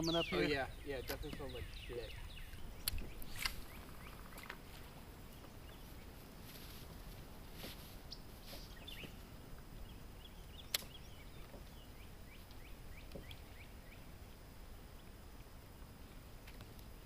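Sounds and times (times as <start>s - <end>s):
low wind rumble: 0.0s - 17.0s
sharp click: 10.7s - 11.0s.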